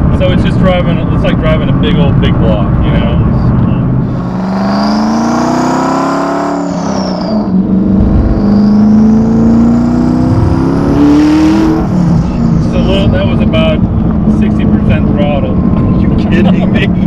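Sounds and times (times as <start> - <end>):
car engine accelerating hard: 0.0 - 17.0
turbo whistle: 6.4 - 7.6.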